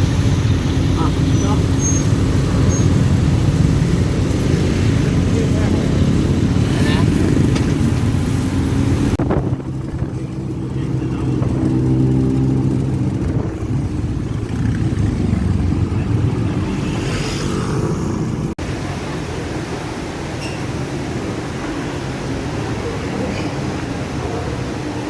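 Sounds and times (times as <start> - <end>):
vehicle engine running: 0.0 - 17.1.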